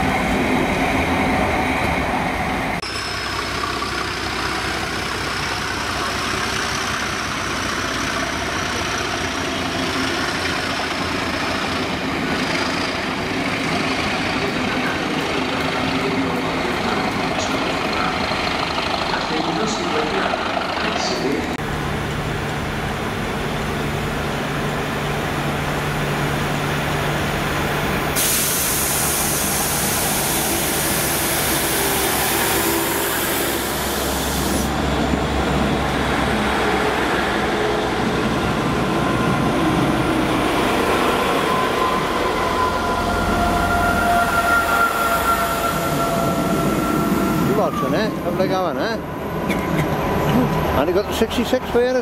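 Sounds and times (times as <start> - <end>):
train diesel engine humming: 0.0 - 52.0
loud hiss: 28.1 - 34.8
train brake squeal: 41.2 - 48.1.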